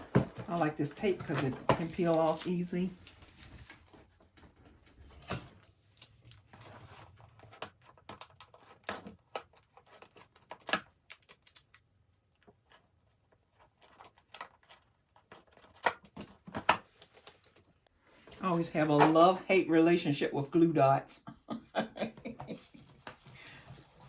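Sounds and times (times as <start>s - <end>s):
hands working with tape: 0.0s - 17.9s.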